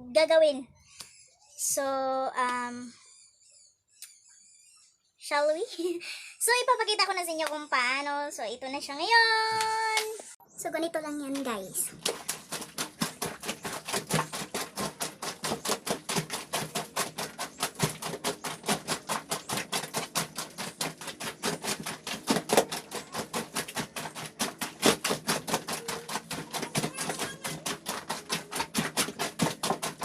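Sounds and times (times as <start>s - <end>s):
wet laundry scrubbed by hand: 11.2s - 30.0s.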